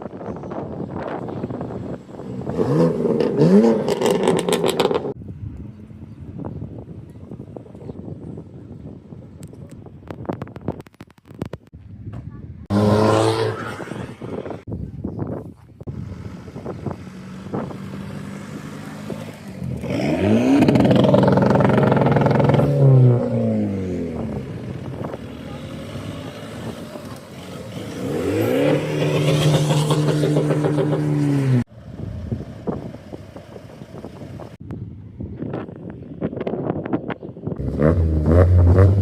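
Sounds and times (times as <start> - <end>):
car engine revving: 2.1 - 5.2, 12.7 - 14.2, 16.0 - 31.7, 37.6 - 39.0.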